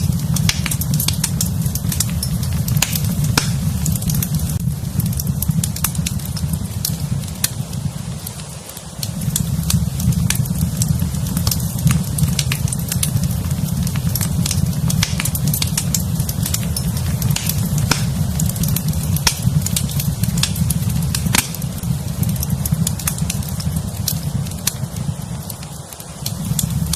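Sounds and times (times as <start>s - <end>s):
low rumble: 0.0s - 25.5s
fireplace fire crackling: 0.0s - 26.9s
sharp pops: 0.3s - 4.4s, 14.3s - 23.3s.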